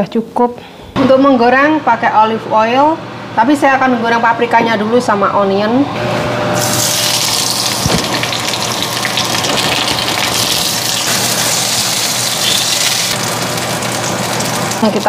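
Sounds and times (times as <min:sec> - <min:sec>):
peppers sizzling in hot oil: 0:06.6 - 0:15.0.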